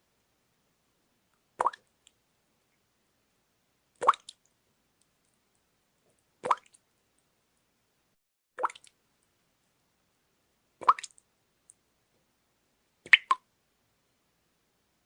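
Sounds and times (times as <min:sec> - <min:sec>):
water dripping: 0:01.3 - 0:02.2, 0:04.0 - 0:07.3, 0:08.6 - 0:09.3, 0:10.8 - 0:11.8, 0:13.0 - 0:13.5.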